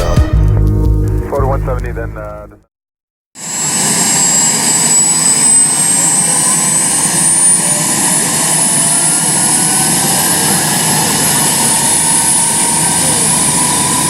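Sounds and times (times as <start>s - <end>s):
turbine engine low rumble: 0.4s - 2.6s
high whine rising in pitch: 3.4s - 14.0s.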